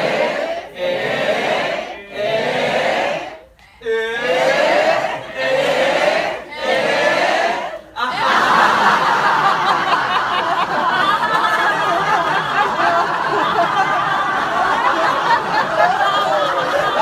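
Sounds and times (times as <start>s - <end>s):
crowd laughing: 4.2s - 17.0s.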